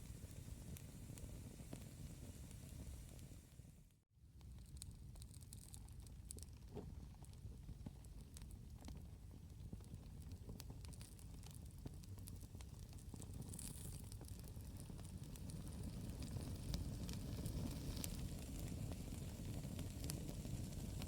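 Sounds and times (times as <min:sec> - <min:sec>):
campfire crackling: 0:00.0 - 0:03.6, 0:09.8 - 0:21.0
fire pops and snaps: 0:04.4 - 0:21.0.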